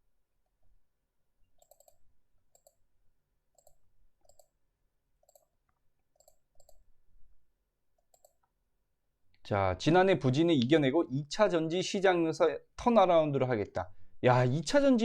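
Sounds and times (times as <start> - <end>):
faint computer mouse clicks: 1.6 - 2.8, 3.5 - 4.6, 5.2 - 6.8, 8.0 - 8.5.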